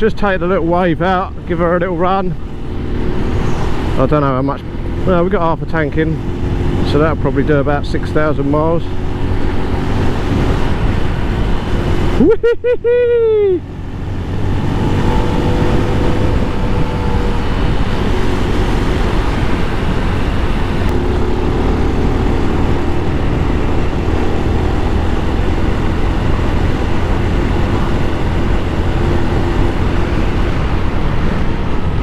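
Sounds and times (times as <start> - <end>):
wind on microphone: 2.4 - 5.2, 8.6 - 12.4, 13.1 - 32.0
motorcycle engine running: 13.6 - 32.0.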